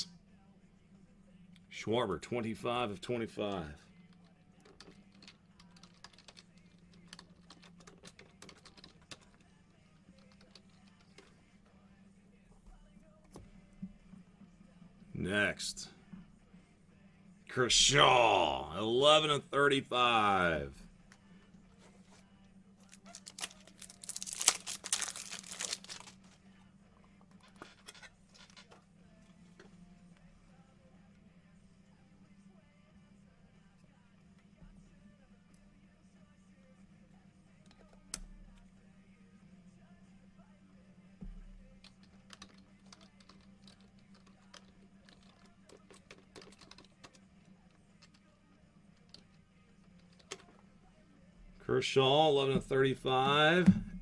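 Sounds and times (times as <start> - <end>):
cards and packaging clicking: 22.8 - 26.4, 41.8 - 47.2
plastic wrapping tearing and crumpling: 22.9 - 26.3.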